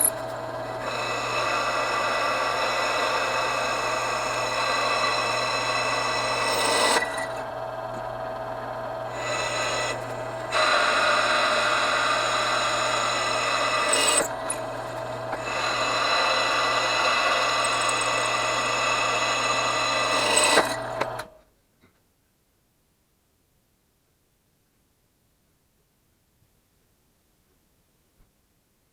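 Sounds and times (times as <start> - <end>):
electric drill cutting metal: 0.0 - 21.3.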